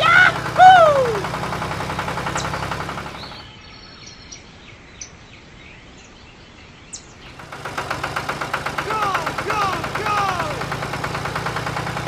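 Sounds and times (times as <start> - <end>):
bird chirps: 3.2 - 7.4
small motor chattering: 7.3 - 12.0.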